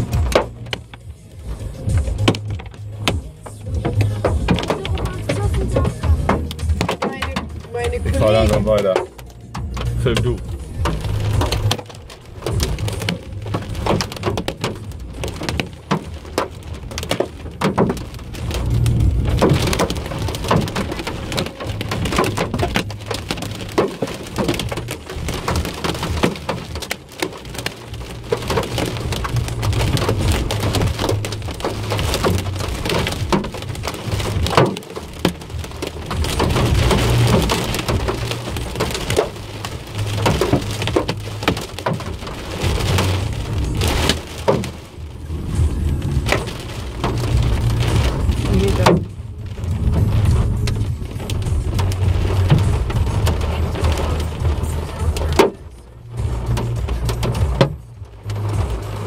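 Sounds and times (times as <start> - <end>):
car low hum: 0.0 - 59.0
hail and rain on car roof: 0.0 - 59.0.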